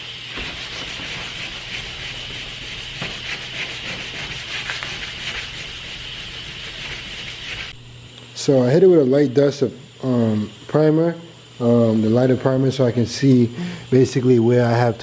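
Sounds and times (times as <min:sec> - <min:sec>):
aerosol spray can hissing: 0:00.1 - 0:07.8.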